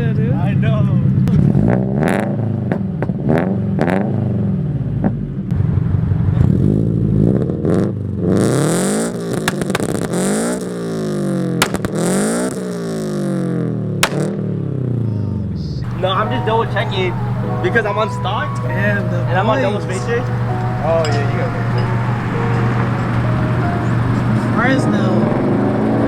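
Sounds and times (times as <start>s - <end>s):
sharp cracks: 9.4s - 10.2s, 11.6s - 12.2s, 14.0s - 14.3s
car engine revving: 15.9s - 26.0s.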